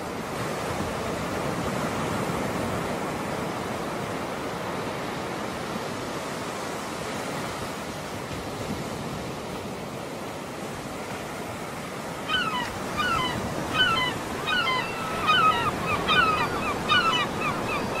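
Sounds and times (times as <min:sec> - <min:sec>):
surf washing: 0:00.0 - 0:18.0
birds chirping: 0:12.3 - 0:18.0.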